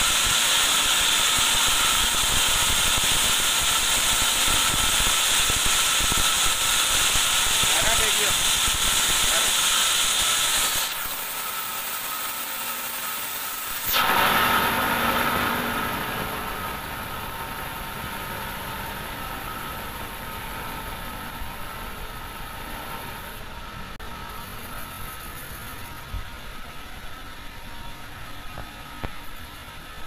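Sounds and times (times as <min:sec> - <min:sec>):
band saw whine and hum: 0:00.0 - 0:30.0.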